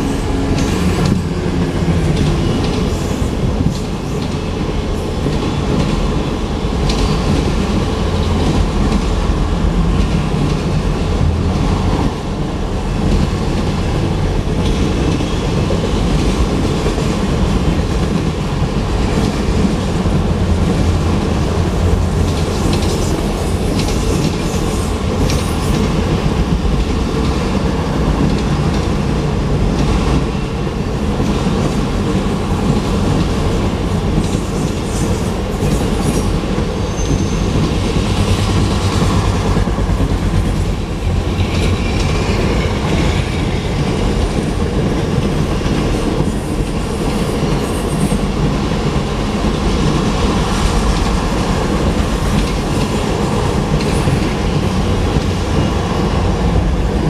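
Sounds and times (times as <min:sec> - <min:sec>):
train wheels rumbling on rail: 0:00.0 - 0:57.0
wheels clickety-clack on rail joints: 0:00.0 - 0:57.0
wheel squeal: 0:36.9 - 0:37.5.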